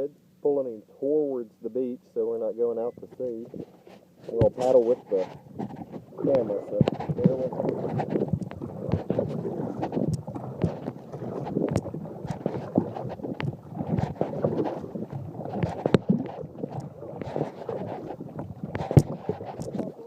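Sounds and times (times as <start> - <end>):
paddle strokes splashing: 2.9 - 20.0
paddle knocking against kayak: 3.0 - 20.0
wind buffeting microphone: 4.4 - 20.0.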